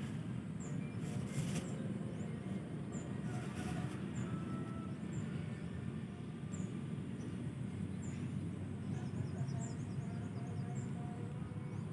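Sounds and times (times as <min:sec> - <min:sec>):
steady low rumble: 0:00.0 - 0:04.3.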